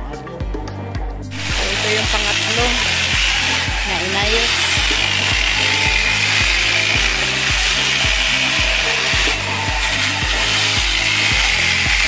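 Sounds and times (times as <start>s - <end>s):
electric chainsaw cutting wood: 1.3s - 12.0s.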